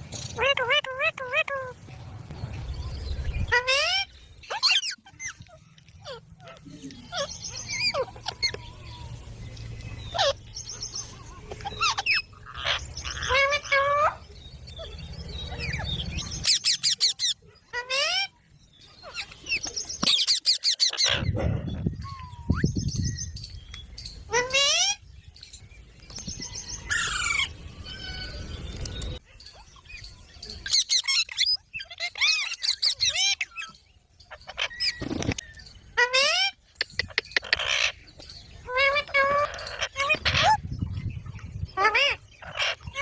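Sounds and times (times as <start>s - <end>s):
parrots chirping and squawking: 0.2s - 9.2s, 10.0s - 22.6s, 30.7s - 43.0s.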